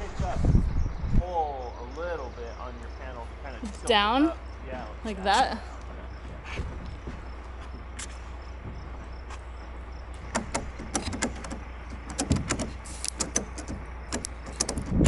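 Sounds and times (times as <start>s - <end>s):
steady low hum: 0.0s - 15.0s
roof panel knocks and clicks: 10.2s - 15.0s.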